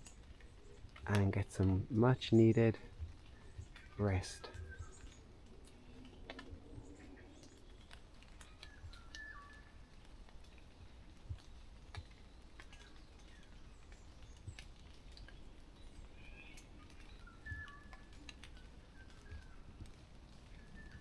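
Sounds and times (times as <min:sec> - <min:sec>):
bird calls: 0:00.0 - 0:10.1, 0:10.9 - 0:21.0
soft clicks and taps: 0:02.9 - 0:09.3.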